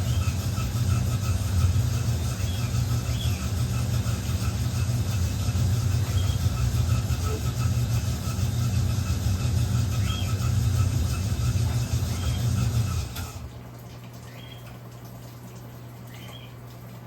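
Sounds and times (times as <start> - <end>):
washing machine motor hum: 0.0 - 17.0.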